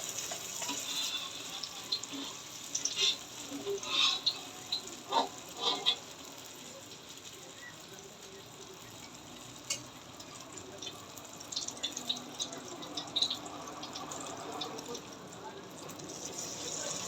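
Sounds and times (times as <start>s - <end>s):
food sizzling in hot oil: 0.0s - 17.0s
oil crackling: 0.0s - 17.0s.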